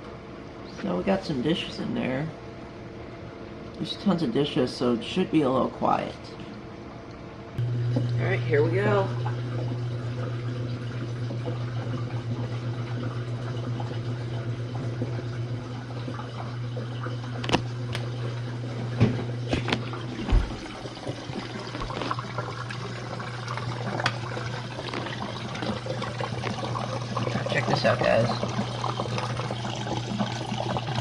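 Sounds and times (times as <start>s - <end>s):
dishwasher water rushing: 7.6s - 31.0s.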